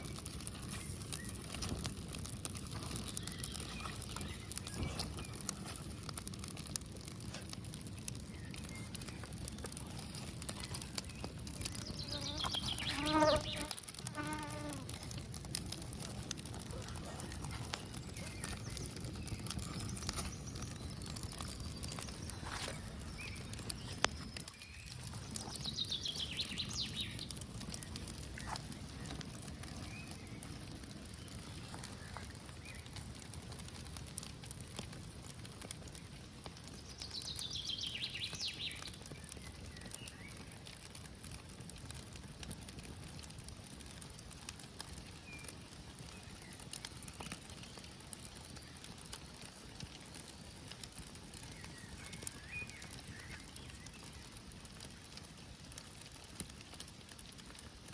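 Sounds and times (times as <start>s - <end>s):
campfire crackling: 0.0s - 57.9s.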